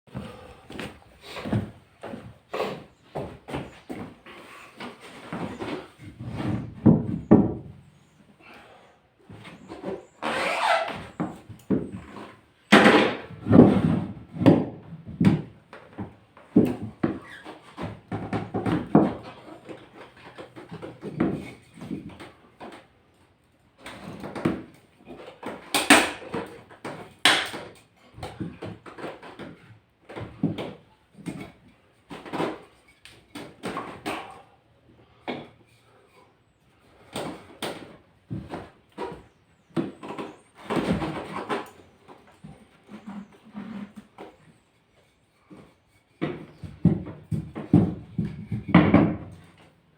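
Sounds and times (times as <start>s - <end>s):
hard objects knocking and scraping: 37.0s - 49.7s.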